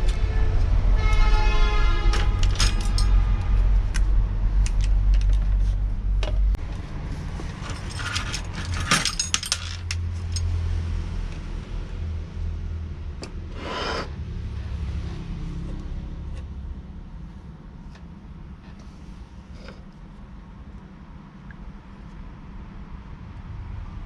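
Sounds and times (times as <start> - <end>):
low rumble: 0.0 - 7.6
metal parts and tools clinking: 2.1 - 3.2, 7.5 - 10.6.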